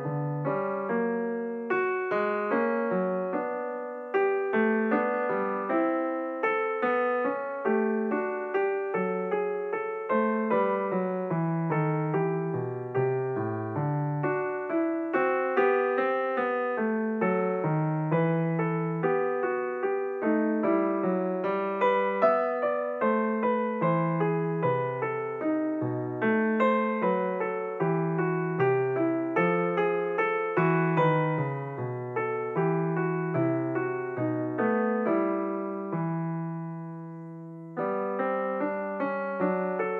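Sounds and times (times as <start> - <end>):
piano music: 0.0 - 39.9.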